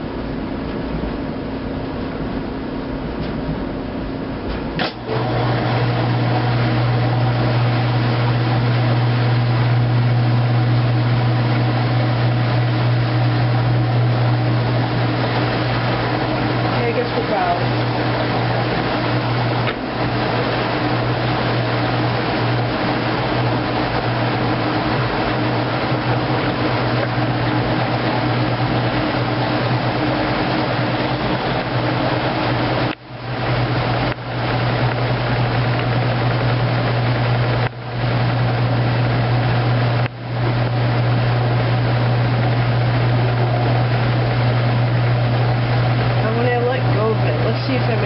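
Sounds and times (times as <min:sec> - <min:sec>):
washing machine motor hum: 0:00.0 - 0:48.0.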